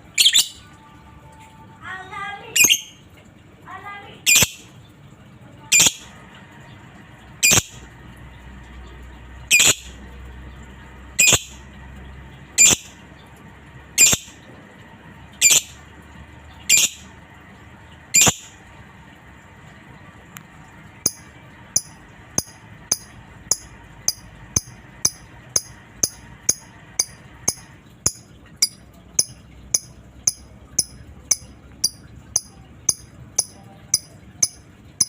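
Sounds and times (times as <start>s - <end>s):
bird squawking: 0.2s - 0.6s, 2.6s - 3.0s, 9.5s - 9.9s, 12.6s - 12.9s, 15.4s - 15.8s, 16.7s - 17.1s, 18.2s - 18.5s
soft bird chatter: 16.5s - 17.1s.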